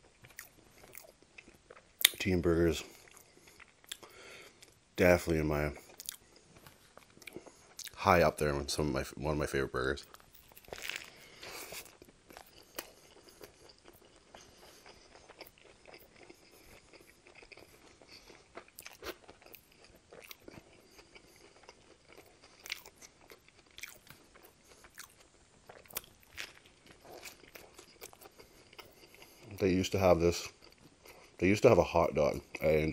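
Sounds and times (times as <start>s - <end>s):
biting and chewing burger: 10.0s - 31.6s.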